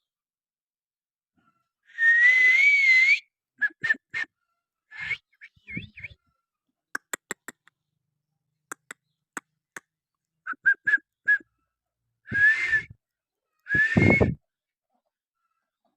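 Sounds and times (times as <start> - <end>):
person clicking: 7.0 - 7.7, 8.7 - 9.5
person whistling: 10.5 - 11.5, 12.3 - 13.0, 13.7 - 14.4.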